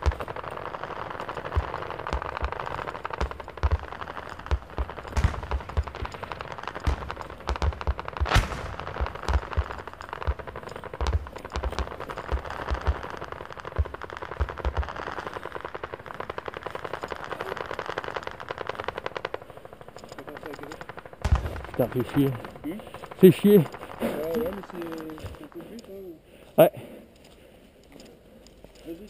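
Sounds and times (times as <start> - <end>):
airsoft guns firing full-auto: 0.0 - 25.6.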